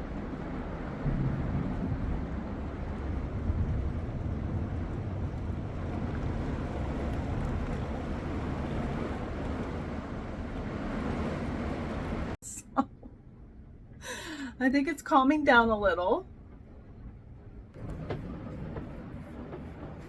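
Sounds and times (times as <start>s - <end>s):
pouring rain: 0.0s - 12.4s, 16.6s - 20.0s
wind buffeting microphone: 0.0s - 12.4s
wind gusting: 0.0s - 12.4s, 16.7s - 20.0s.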